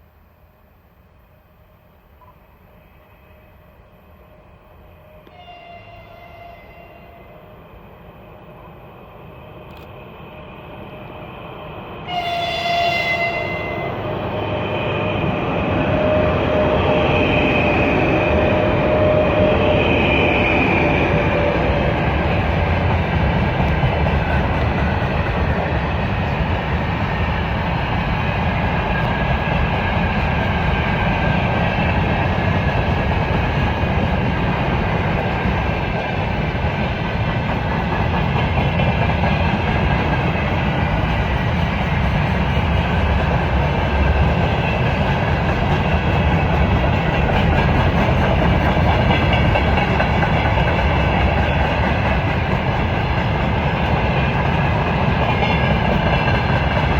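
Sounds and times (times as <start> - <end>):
freight train rumbling past: 0.0 - 56.9.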